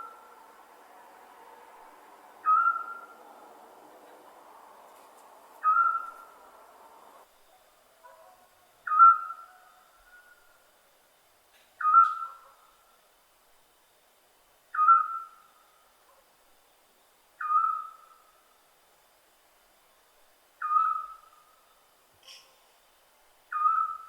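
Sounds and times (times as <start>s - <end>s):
owl whistled call: 2.4s - 3.2s, 5.6s - 6.4s, 8.8s - 10.4s, 11.8s - 12.5s, 14.7s - 15.5s, 17.4s - 18.2s, 20.6s - 21.6s, 23.5s - 24.0s.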